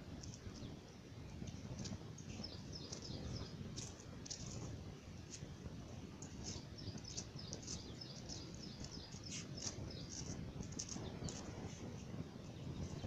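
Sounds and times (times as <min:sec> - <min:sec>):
steady low rumble: 0:00.0 - 0:13.0
birds chirping: 0:01.7 - 0:04.7, 0:06.2 - 0:13.0.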